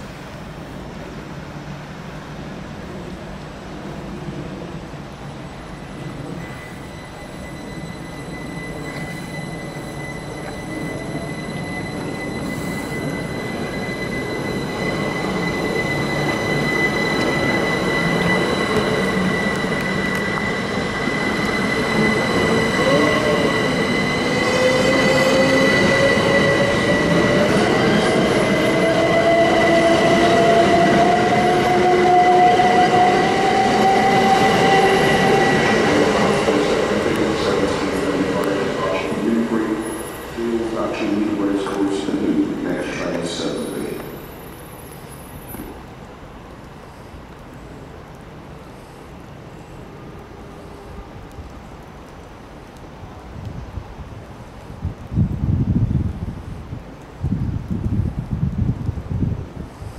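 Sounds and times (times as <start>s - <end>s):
train moving through station: 0.0s - 59.9s
high-pitched whine: 3.8s - 41.8s.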